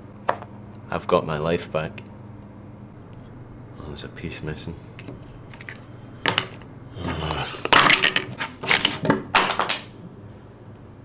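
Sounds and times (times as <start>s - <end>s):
crashing and clattering: 7.6s - 9.9s.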